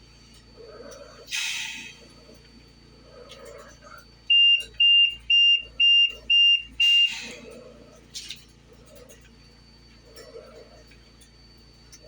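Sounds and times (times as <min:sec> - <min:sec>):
high-pitched beeps: 0:04.3 - 0:07.4.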